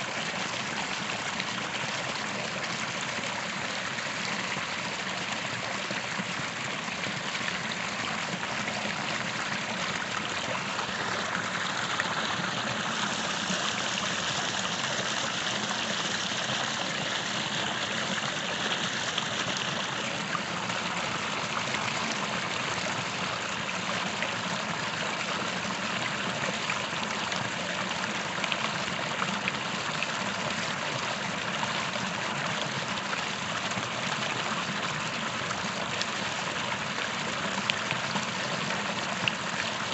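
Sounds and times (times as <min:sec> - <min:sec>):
creek water trickling: 0:00.0 - 0:39.9.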